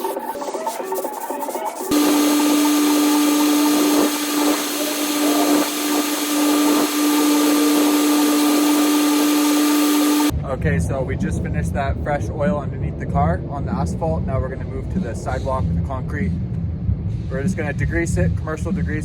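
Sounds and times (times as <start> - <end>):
machine drone: 1.9 - 10.3
pressure washer spray hiss: 1.9 - 10.3.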